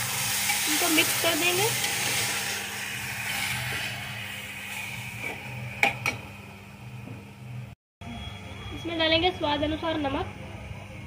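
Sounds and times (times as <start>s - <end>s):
vegetables sizzling in a pot: 0.0s - 6.5s.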